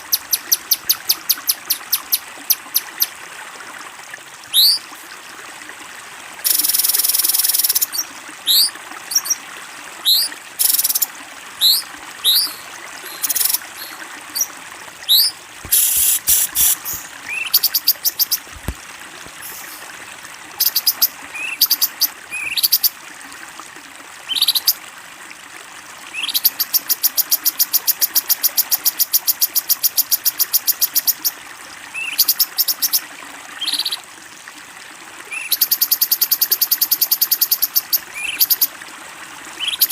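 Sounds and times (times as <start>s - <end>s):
running water: 0.0s - 39.9s
songbird whistled calls: 4.5s - 4.8s, 10.0s - 11.0s, 11.6s - 14.5s, 15.1s - 18.4s, 24.3s - 24.7s.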